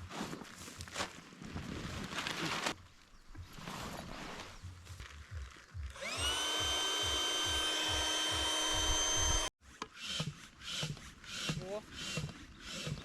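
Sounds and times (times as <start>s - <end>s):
small electric motor whining: 5.9s - 13.0s.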